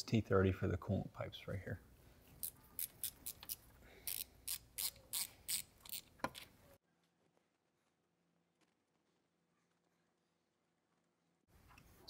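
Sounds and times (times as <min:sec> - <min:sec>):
ratchet wrench clicking: 0:02.8 - 0:06.1.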